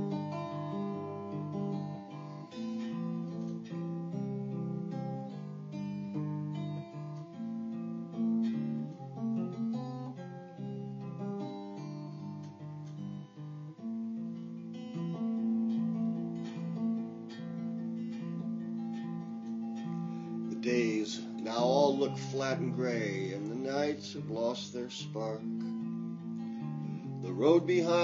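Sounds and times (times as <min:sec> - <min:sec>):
clean electric guitar: 0:00.0 - 0:28.0.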